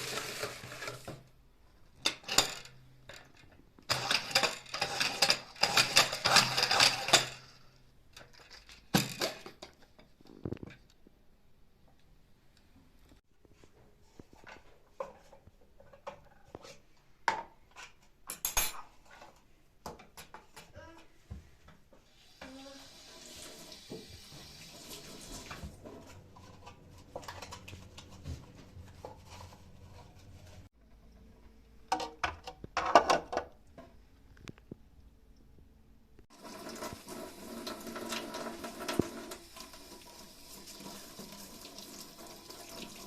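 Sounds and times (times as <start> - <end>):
dishes and utensils clinking: 2.0 - 7.6, 17.8 - 19.4.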